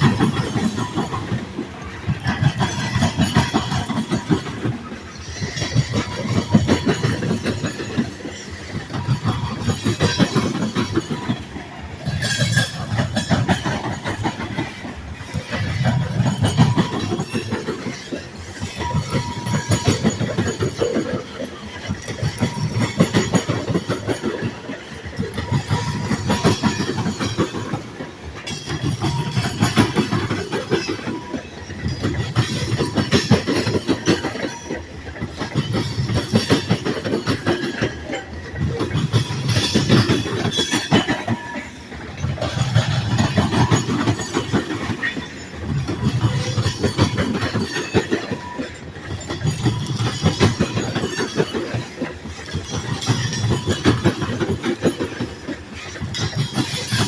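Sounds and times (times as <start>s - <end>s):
train wheels clacking over rail joints: 0.0s - 57.0s.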